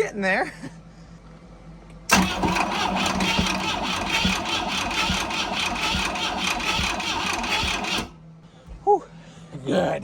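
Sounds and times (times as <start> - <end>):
boat engine cranking on starter motor: 2.1 - 8.1.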